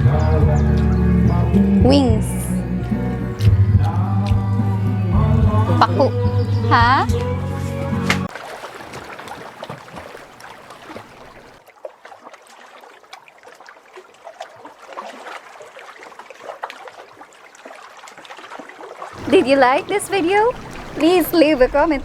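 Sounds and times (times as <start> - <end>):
low rumble: 0.0 - 7.2
water trickling: 7.6 - 22.0.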